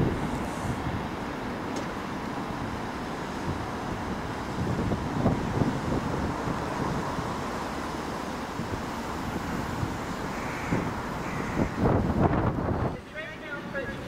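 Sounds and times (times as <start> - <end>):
wind on microphone: 0.0 - 1.2, 3.4 - 7.6, 8.4 - 13.1
train rumbling: 0.0 - 14.0.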